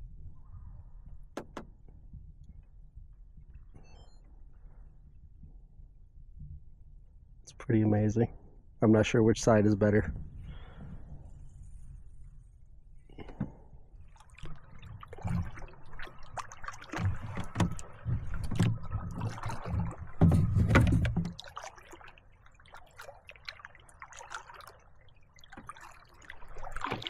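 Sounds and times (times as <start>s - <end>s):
paddle strokes splashing in water: 13.1s - 27.0s.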